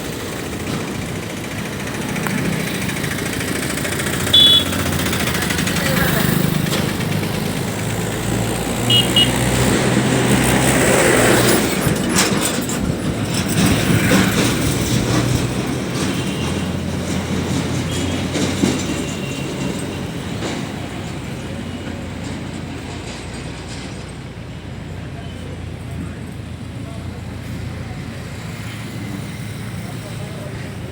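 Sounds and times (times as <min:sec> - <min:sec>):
vehicle engine running: 0:00.0 - 0:18.9
clattering and knocking: 0:09.4 - 0:24.2.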